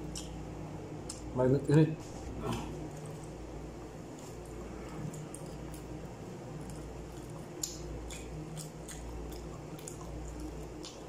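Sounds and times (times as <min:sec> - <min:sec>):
steady low hum: 0:00.0 - 0:11.0
wet chewing sounds: 0:02.4 - 0:11.0.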